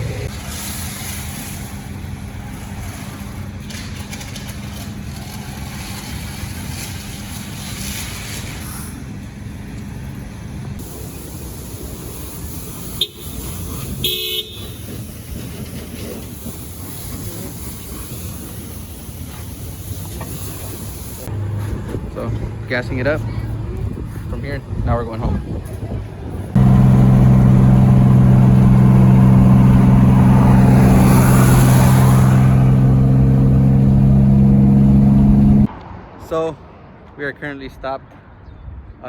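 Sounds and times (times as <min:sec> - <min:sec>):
street traffic noise: 0:00.0 - 0:39.0
car horn toot: 0:13.0 - 0:13.4, 0:14.0 - 0:14.7.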